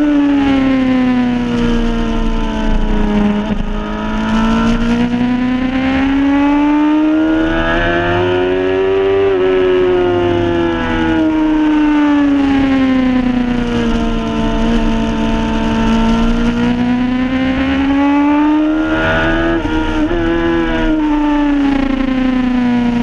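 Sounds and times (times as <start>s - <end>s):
motorcycle engine at speed: 0.0s - 23.0s.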